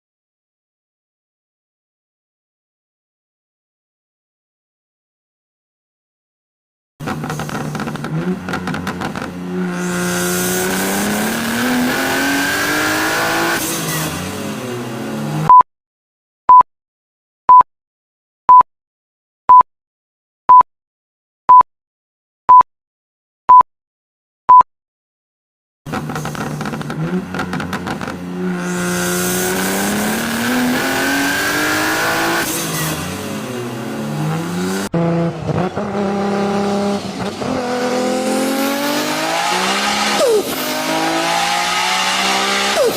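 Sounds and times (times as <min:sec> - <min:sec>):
car engine accelerating: 0:07.0 - 0:15.5, 0:25.9 - 0:42.9
car engine revving: 0:07.0 - 0:15.5, 0:25.9 - 0:42.9.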